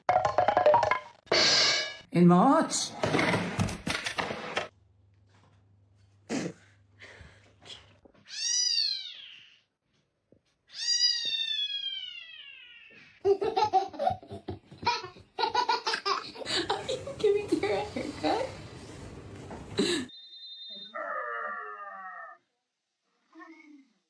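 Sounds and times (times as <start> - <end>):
cat meowing: 10.7 - 13.0.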